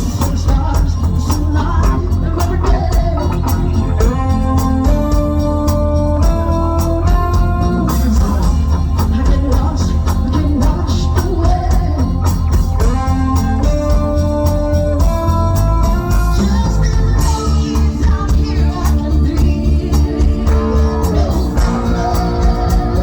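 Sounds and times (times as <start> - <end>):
organ-like keyboard chords: 0.0 - 23.0
person singing: 0.0 - 23.0
steady drum beat: 0.0 - 23.0.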